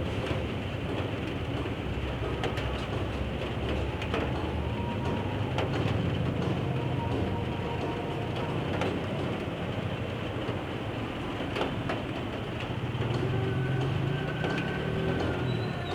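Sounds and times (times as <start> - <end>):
low rumble of a train: 0.0 - 15.9
steady rain falling: 0.0 - 15.9.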